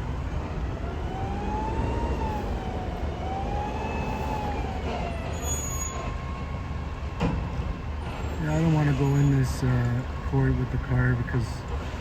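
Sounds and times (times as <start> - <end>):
low rumble of car: 0.0 - 5.2.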